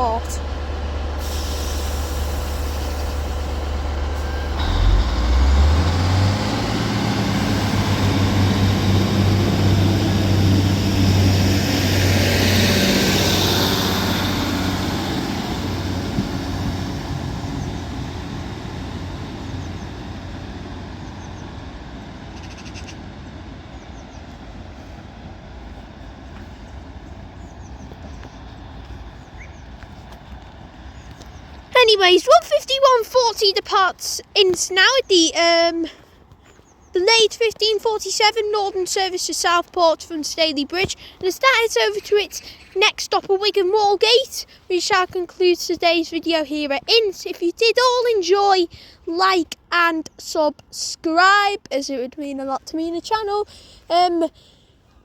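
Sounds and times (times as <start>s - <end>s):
train rushing past: 0.0s - 35.8s
diesel train engines: 0.0s - 55.0s.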